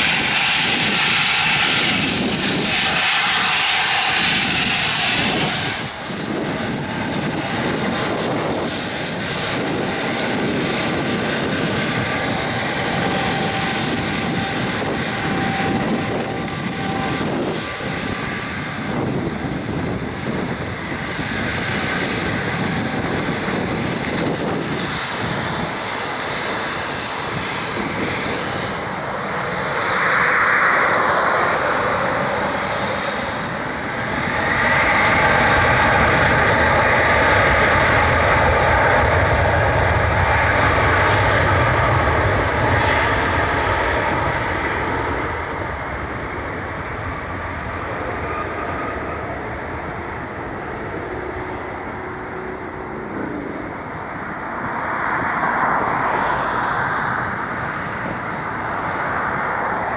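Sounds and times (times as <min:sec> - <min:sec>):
jet engines at takeoff power: 0:00.0 - 0:59.9.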